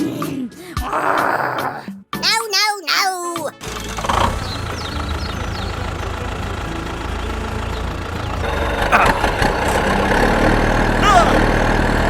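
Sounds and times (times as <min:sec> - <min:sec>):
engine idling: 0:03.6 - 0:12.0.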